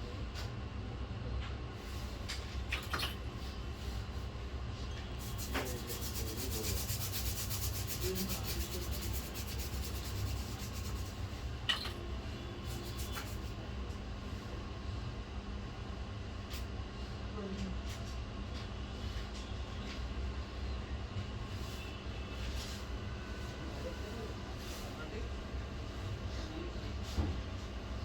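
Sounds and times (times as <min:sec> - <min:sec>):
scrubbing strokes on circuit board: 0:05.2 - 0:11.4.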